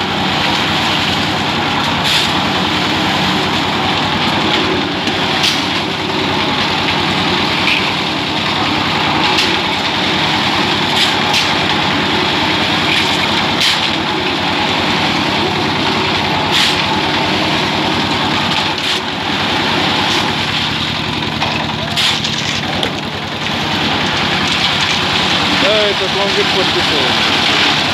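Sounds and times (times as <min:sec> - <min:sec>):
concrete mixer engine running: 0:00.0 - 0:27.9
knocks and clatters: 0:19.8 - 0:27.9.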